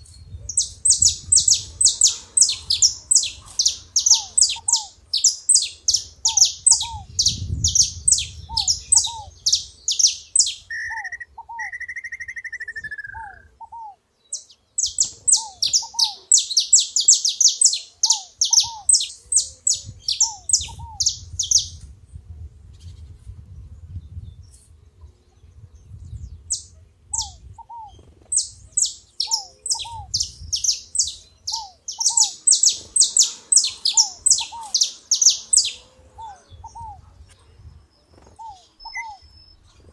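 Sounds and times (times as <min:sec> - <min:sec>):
finch singing high chirps: 0:00.0 - 0:21.8, 0:25.8 - 0:37.4, 0:38.0 - 0:39.9
low bird call notes: 0:00.6 - 0:21.8, 0:28.8 - 0:37.4, 0:38.1 - 0:39.8.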